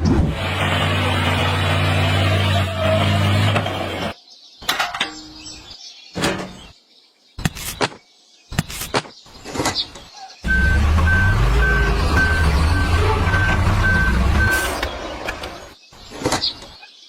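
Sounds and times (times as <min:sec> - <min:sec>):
vehicle engine droning: 0:00.0 - 0:04.2, 0:10.4 - 0:15.8
reversing beeps: 0:10.5 - 0:14.8.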